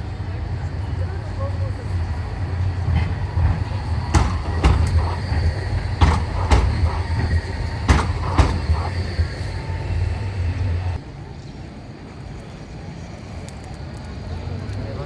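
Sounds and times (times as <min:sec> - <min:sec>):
tram rumbling past: 0:00.0 - 0:11.4
wheels clacking over rail joint: 0:00.6 - 0:11.0.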